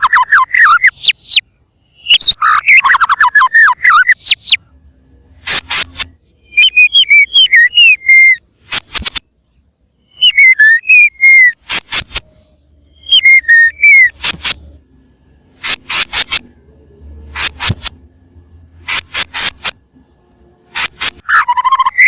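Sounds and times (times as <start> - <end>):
bird singing whistled notes: 0.0 - 8.5, 9.5 - 18.9, 21.2 - 22.0
harsh rasping bird notes: 12.9 - 14.7.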